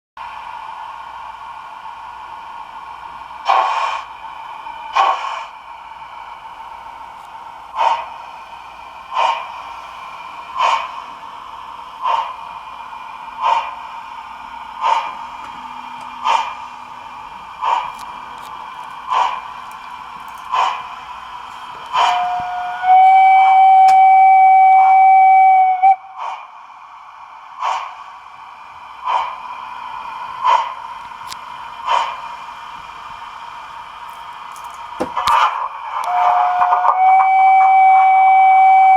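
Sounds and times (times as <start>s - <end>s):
model train whine: 0.2s - 38.9s
steam whistle blowing: 21.9s - 26.2s, 36.0s - 38.9s.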